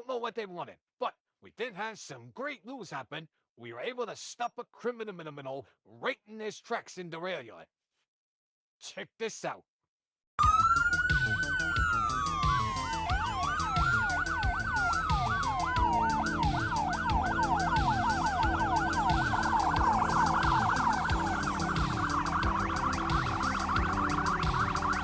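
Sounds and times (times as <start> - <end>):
police sirens wailing and yelping: 10.4 - 25.0
low repeating pulse: 11.4 - 25.0.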